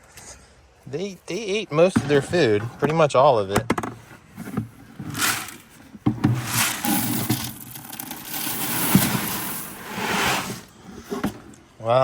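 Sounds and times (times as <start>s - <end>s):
dry feed pouring: 6.5s - 9.8s.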